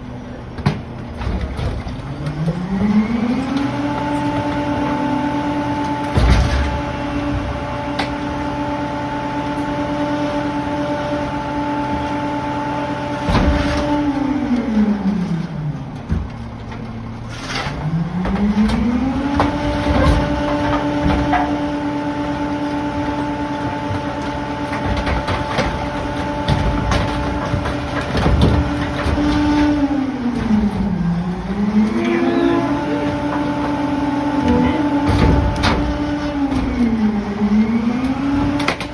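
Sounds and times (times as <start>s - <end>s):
garbage truck diesel engine: 0.0s - 38.9s
debris knocks and crunches: 13.2s - 32.0s, 32.9s - 38.9s.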